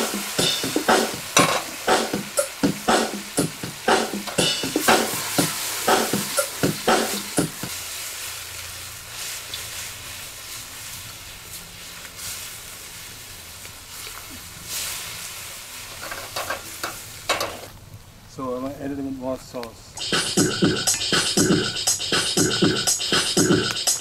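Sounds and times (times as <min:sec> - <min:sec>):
stir-fry sizzling in a pan: 0:00.0 - 0:17.8
spatula scraping a pan: 0:15.8 - 0:17.7.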